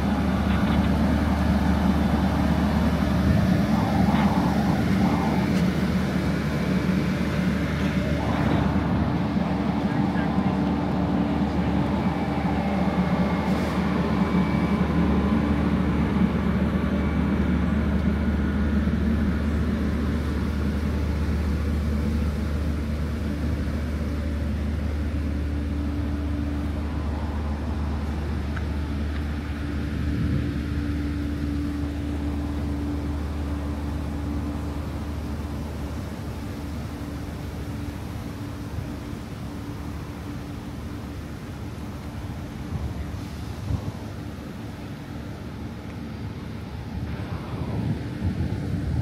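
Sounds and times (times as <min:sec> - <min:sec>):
low mechanical hum of train: 0:00.0 - 0:49.0.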